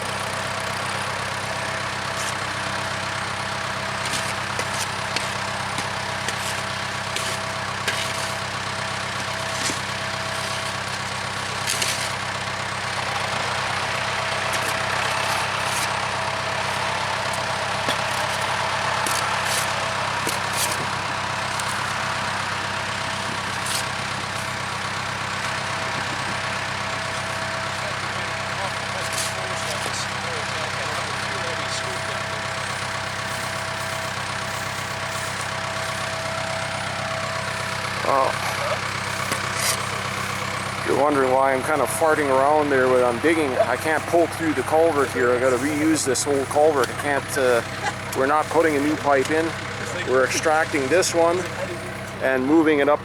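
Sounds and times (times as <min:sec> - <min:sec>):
backhoe diesel engine running: 0:00.0 - 0:53.0
bucket scraping dirt and gravel: 0:03.4 - 0:24.6, 0:37.4 - 0:51.8.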